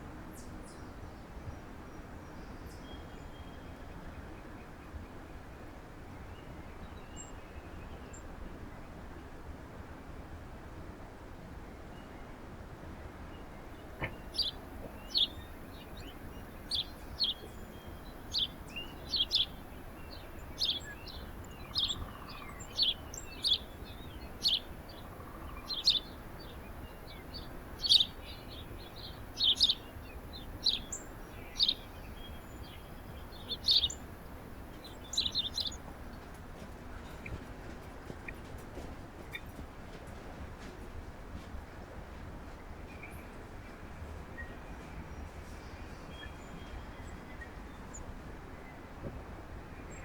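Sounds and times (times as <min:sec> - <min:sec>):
songbirds chirping: 0:12.8 - 0:40.0.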